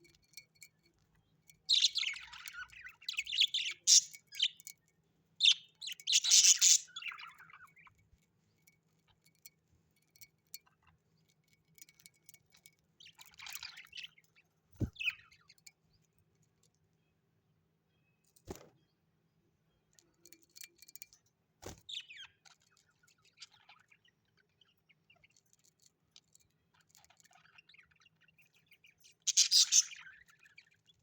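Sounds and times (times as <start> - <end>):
parrots chirping and chattering: 0.0 - 8.0, 10.1 - 15.7, 21.8 - 31.0.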